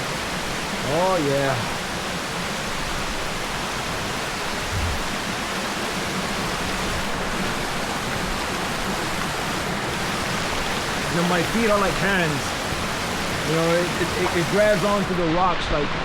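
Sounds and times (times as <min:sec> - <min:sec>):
river rushing: 0:00.0 - 0:16.0
low thump: 0:04.7 - 0:05.2.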